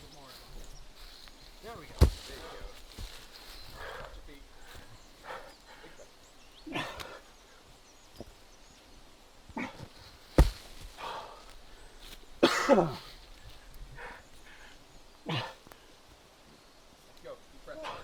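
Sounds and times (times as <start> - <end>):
sharp thump: 1.9 - 2.5, 10.4 - 10.9.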